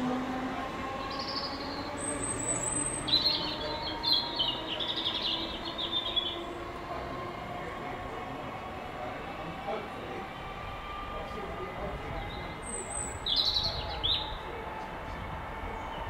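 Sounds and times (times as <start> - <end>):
small birds chirping: 0.9 - 6.8, 12.1 - 14.5.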